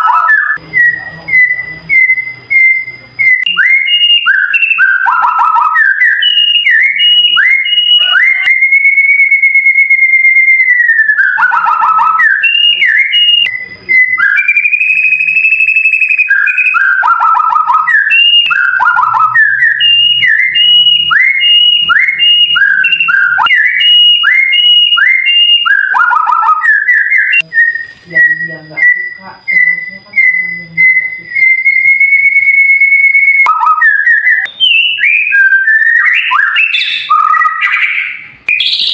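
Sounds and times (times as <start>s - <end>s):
songbird whistling: 0.0s - 38.9s.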